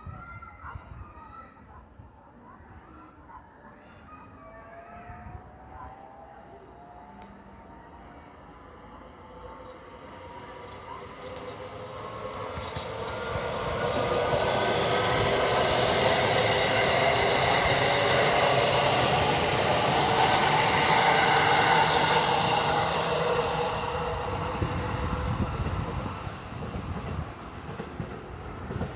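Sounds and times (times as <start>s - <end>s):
electric train rumble: 6.9s - 28.9s.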